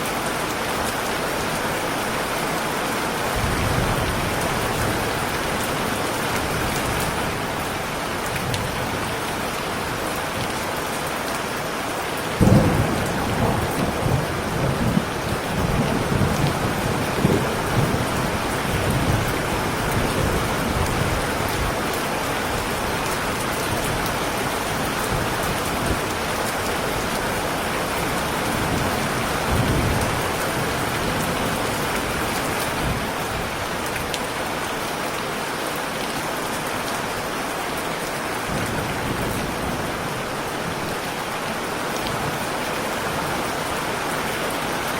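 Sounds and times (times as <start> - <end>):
heavy rain: 0.0 - 44.9
thunder rumbling: 12.4 - 34.0.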